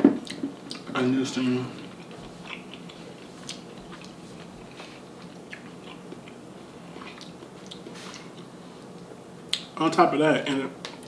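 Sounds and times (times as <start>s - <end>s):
close wet chewing: 1.9s - 8.5s.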